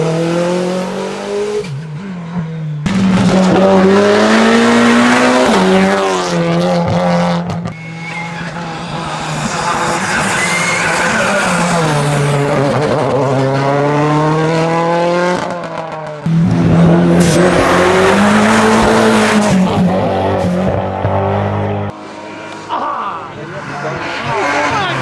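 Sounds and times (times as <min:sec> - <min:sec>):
race car engine revving: 0:00.0 - 0:25.0.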